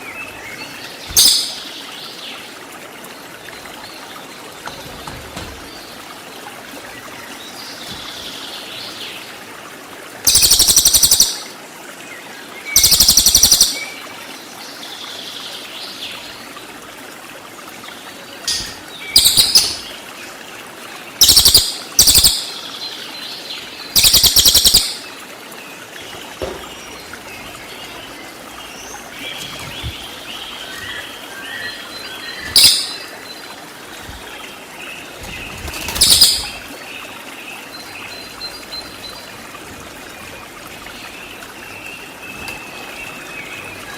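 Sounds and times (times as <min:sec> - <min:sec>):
running water: 0:00.0 - 0:43.9
songbird trilling: 0:01.1 - 0:01.6, 0:10.3 - 0:11.4, 0:12.8 - 0:13.8, 0:18.5 - 0:19.9, 0:21.2 - 0:22.6, 0:24.0 - 0:25.0, 0:31.5 - 0:33.1, 0:36.0 - 0:36.6.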